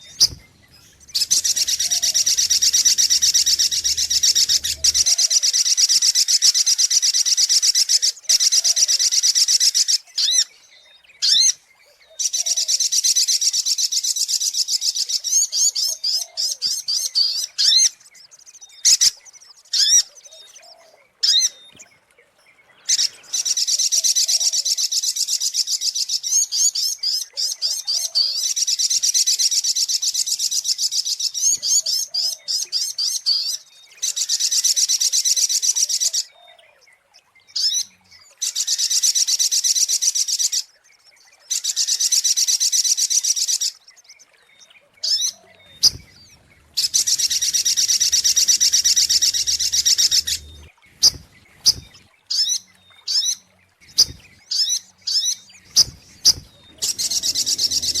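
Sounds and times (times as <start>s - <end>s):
bird chattering trills: 0.0s - 5.4s, 45.2s - 52.5s, 53.8s - 58.0s
short bird calls: 0.0s - 5.7s, 44.8s - 58.0s.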